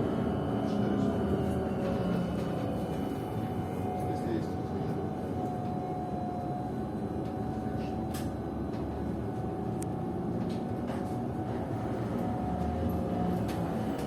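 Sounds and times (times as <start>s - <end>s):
trolleybus low rumble: 0.0s - 14.0s.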